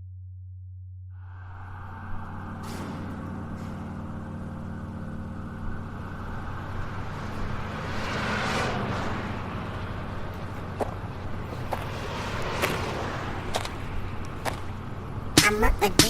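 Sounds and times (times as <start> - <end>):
hissing swell: 1.2 - 5.9
low synth drone: 1.2 - 7.6.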